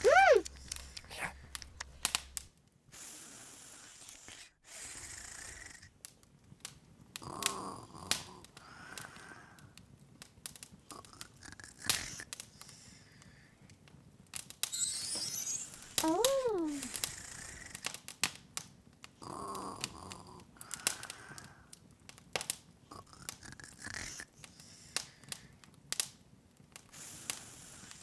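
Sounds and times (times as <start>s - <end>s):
wood fire crackling: 0.0s - 2.6s.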